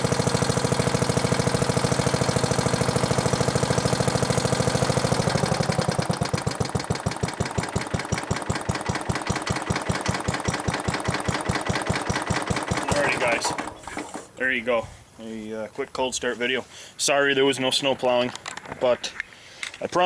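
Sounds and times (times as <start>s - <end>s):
small engine running: 0.0s - 14.3s.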